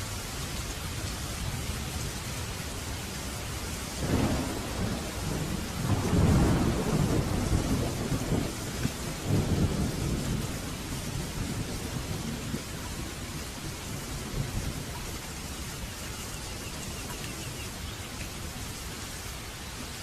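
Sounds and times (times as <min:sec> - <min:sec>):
heavy rain hissing: 0:00.0 - 0:20.0
thunder rumbling: 0:03.4 - 0:15.9.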